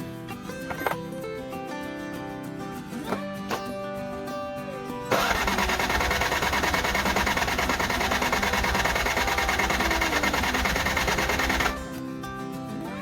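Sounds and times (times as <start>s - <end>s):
riding mower engine running: 5.1s - 12.0s.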